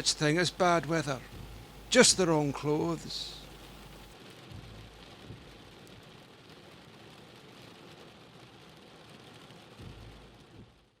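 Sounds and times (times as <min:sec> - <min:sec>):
rain falling: 0:00.0 - 0:11.0.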